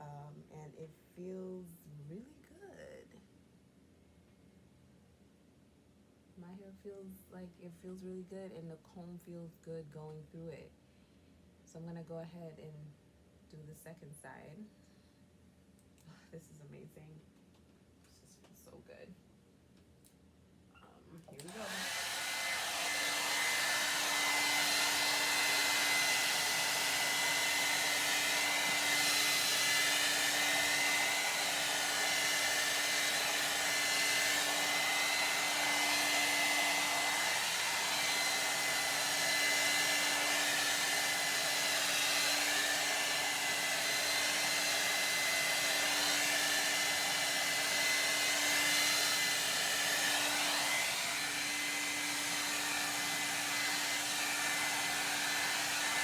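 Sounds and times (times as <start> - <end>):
hair dryer running: 21.2 - 56.0.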